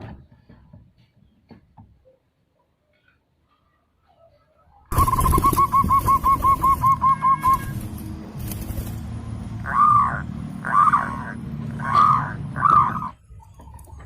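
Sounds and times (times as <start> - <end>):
dove cooing: 4.9 - 7.9, 9.6 - 13.2.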